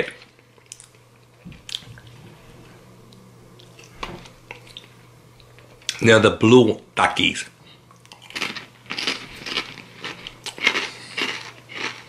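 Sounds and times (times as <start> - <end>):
person chewing crunchy chips: 7.9 - 12.0.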